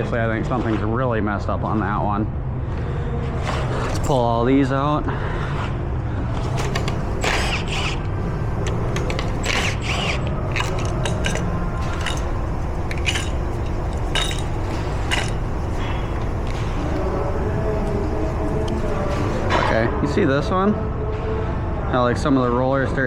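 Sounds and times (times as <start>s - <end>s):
low background hum: 0.0s - 23.0s
metal clicks and scrapes of lifters: 6.4s - 16.6s.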